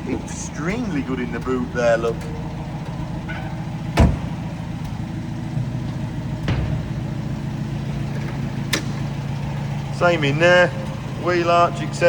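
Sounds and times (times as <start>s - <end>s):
car engine idling: 0.0s - 12.0s
faint knocks: 1.1s - 9.9s
sharp thump: 4.0s - 5.0s, 6.4s - 9.0s.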